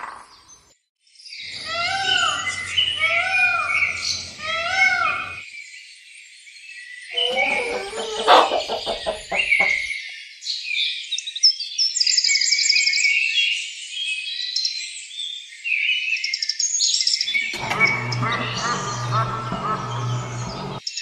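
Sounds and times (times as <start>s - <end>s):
birds chirping and trilling: 0.0s - 21.0s
low pulsing animal call: 1.6s - 5.4s, 7.1s - 9.9s, 17.3s - 20.8s.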